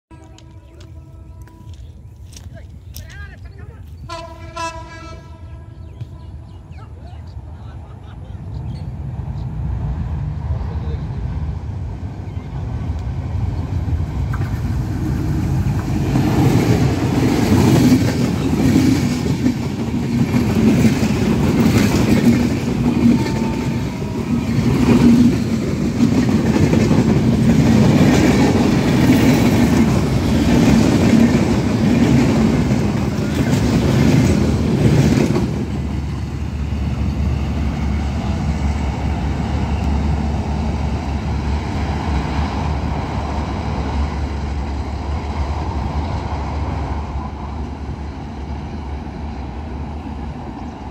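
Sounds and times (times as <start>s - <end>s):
diesel locomotive rumble: 0.1s - 50.9s
train wheels clattering over joints: 14.3s - 36.3s.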